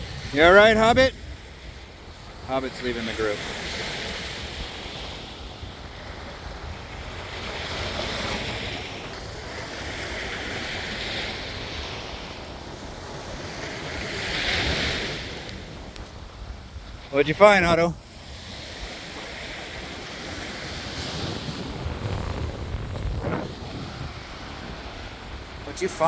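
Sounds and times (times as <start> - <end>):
ocean surf washing ashore: 0.0 - 26.0
wind rumbling on microphone: 0.0 - 26.0.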